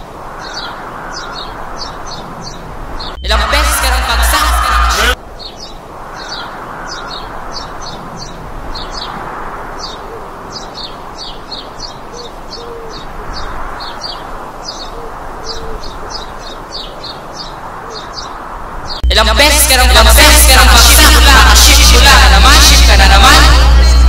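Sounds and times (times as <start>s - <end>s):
low bird calls: 0.0s - 19.0s
birds chirping: 0.0s - 24.0s
steady rushing background: 0.0s - 24.0s.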